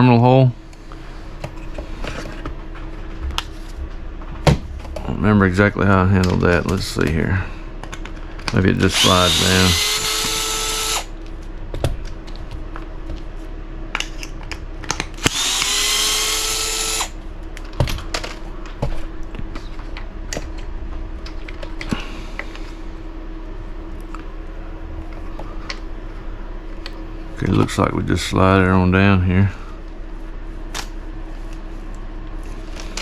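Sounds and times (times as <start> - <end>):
power screwdriver whirring: 8.8 - 11.1, 15.2 - 17.2.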